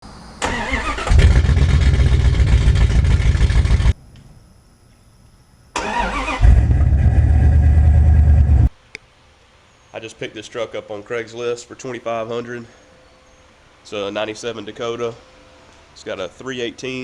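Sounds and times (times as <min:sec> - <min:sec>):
car engine cranking and starting: 0:00.4 - 0:04.0, 0:05.8 - 0:08.7
deep engine exhaust rumble: 0:01.1 - 0:04.0, 0:06.4 - 0:08.7.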